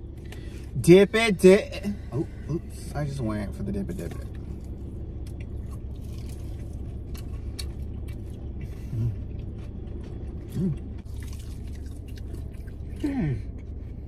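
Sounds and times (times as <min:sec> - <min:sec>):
low hum inside a car: 0:00.0 - 0:14.0
chewing crispy fried chicken: 0:04.1 - 0:14.0.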